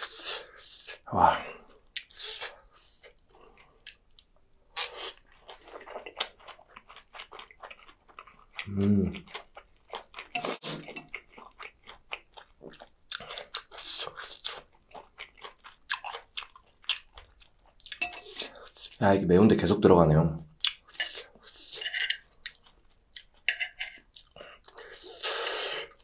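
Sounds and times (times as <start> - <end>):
wet chewing with crunches: 1.9 - 19.0.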